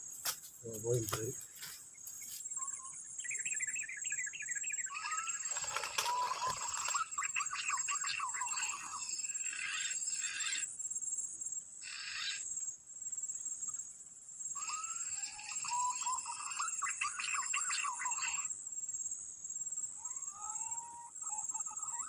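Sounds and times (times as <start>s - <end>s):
high insect drone: 0.0s - 22.0s
whistled bird calls: 2.2s - 10.7s, 14.6s - 18.5s, 20.0s - 22.0s.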